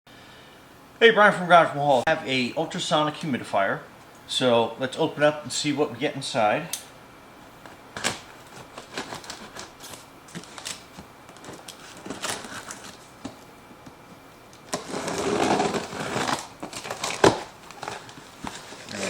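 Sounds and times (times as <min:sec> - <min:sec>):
packing rustling: 0:08.0 - 0:13.4, 0:14.7 - 0:19.0.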